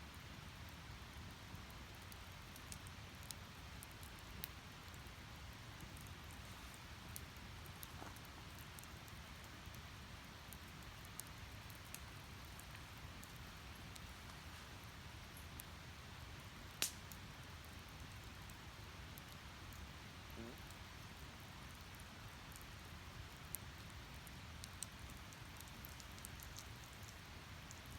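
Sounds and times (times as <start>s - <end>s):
wood fire crackling: 0.0s - 27.9s
sharp loud fire crack: 16.8s - 17.0s.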